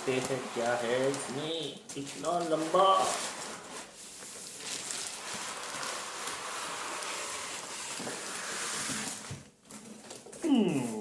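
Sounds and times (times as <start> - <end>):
packaging rustling and scraping: 0.0 - 10.4.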